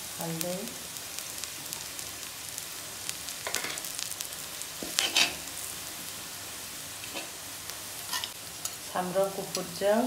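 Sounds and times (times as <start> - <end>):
food sizzling in hot oil: 0.0 - 10.0
utensil scraping and stirring: 4.8 - 5.4.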